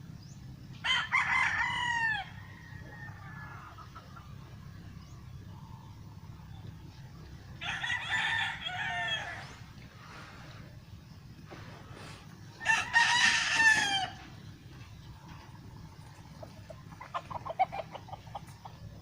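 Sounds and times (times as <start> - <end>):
rooster crowing: 0.8 - 4.0, 7.6 - 9.7, 12.5 - 14.4.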